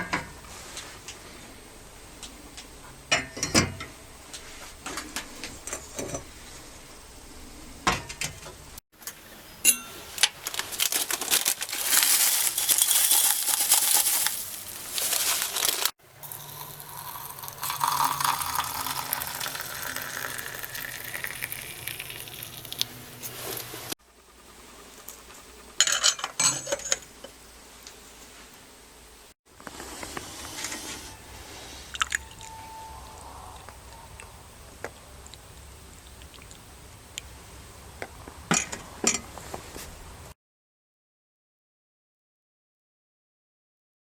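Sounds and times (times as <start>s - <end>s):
china clinking and knocking: 12.0s - 15.2s, 15.8s - 22.4s.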